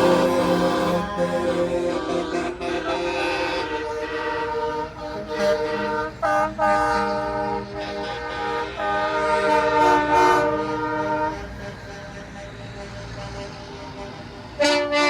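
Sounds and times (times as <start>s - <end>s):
truck chord air horns blasting: 0.0s - 15.0s.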